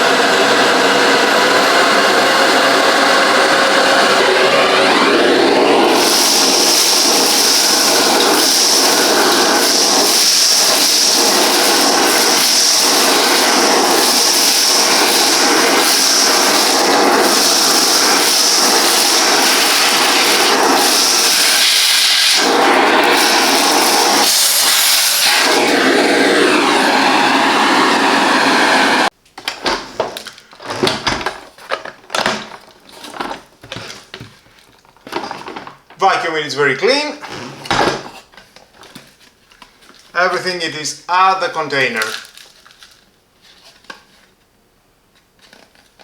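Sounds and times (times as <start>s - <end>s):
vacuum cleaner running: 0.0s - 34.4s.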